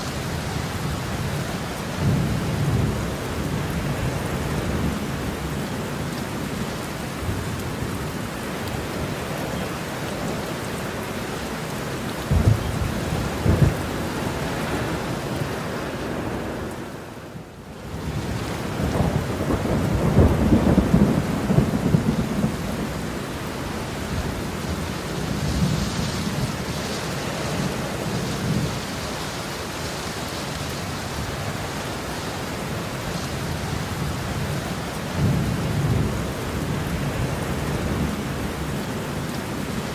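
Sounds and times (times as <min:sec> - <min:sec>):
rain hissing: 0:00.0 - 0:39.9
rolling thunder: 0:12.3 - 0:15.4, 0:18.0 - 0:23.4.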